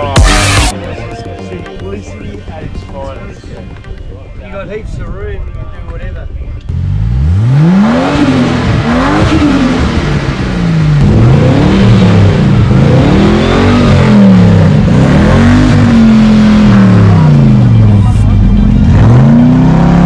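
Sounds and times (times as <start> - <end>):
car engine revving: 0.0 - 0.7, 6.7 - 20.0.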